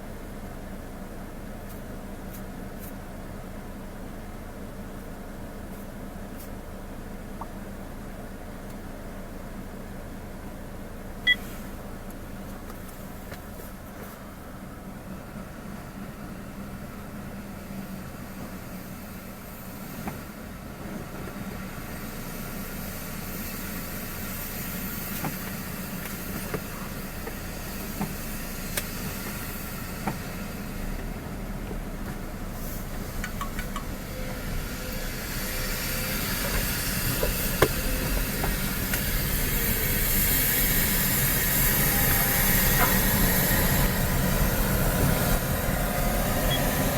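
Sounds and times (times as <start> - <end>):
engine hum: 0.0 - 46.9
rushing hiss: 34.0 - 46.9.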